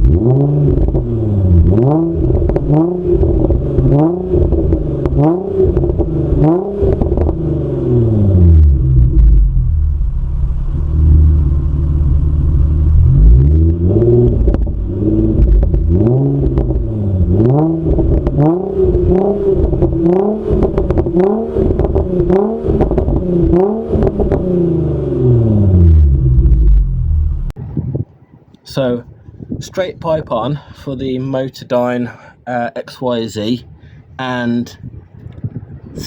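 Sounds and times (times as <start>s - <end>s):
car engine idling and revving: 0.0s - 27.6s.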